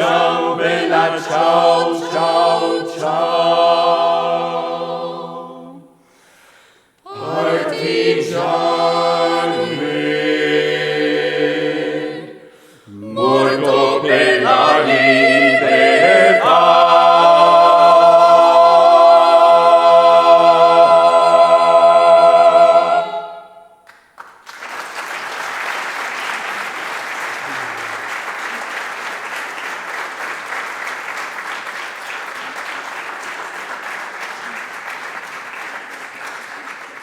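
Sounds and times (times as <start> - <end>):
vocal ensemble holding a chord: 0.0 - 6.1, 7.1 - 23.8
audience clapping: 23.9 - 37.0.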